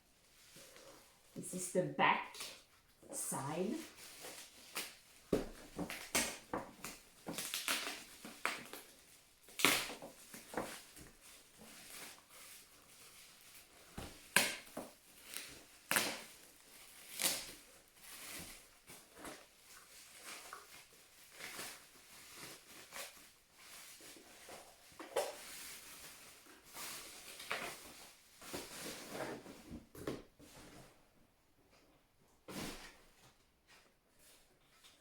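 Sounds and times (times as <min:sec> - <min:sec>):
packaging rustling and crinkling: 0:03.8 - 0:31.0.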